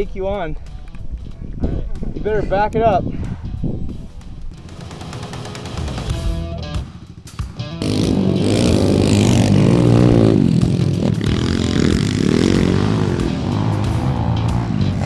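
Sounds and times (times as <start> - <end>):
music playing: 0.0 - 15.0
motorbike engine revving: 4.5 - 15.0.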